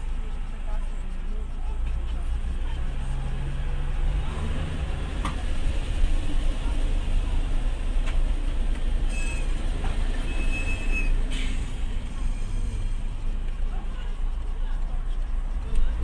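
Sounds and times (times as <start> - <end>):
vehicle driving rumble: 0.0 - 16.0
high-pitched whine: 8.9 - 16.0.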